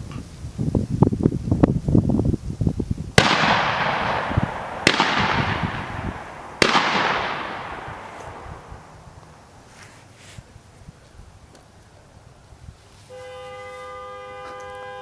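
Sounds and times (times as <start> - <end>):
shotgun blasts with rolling echo: 3.2 - 9.5.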